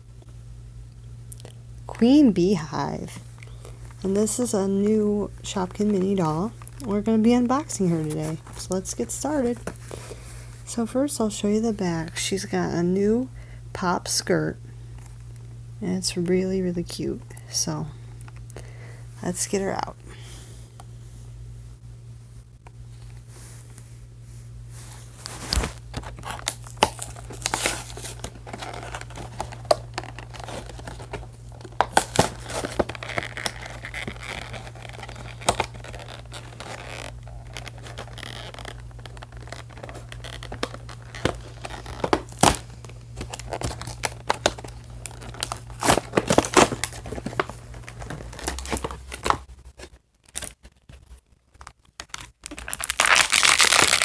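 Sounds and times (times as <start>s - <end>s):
cardboard and plastic tearing: 25.2s - 54.0s.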